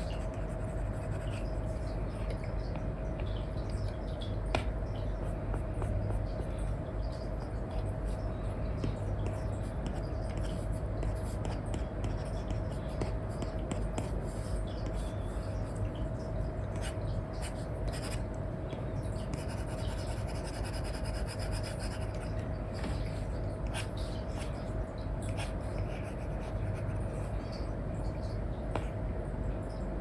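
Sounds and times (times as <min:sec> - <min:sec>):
stylus scratching on screen: 0:00.0 - 0:02.4, 0:19.2 - 0:24.7
steady low hum: 0:00.0 - 0:30.0.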